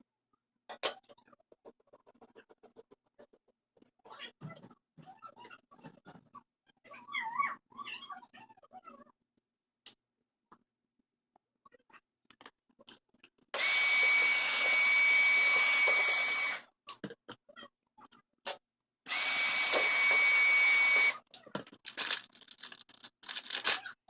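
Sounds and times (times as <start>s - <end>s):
electric air tool whining: 13.6s - 16.6s, 19.1s - 21.2s.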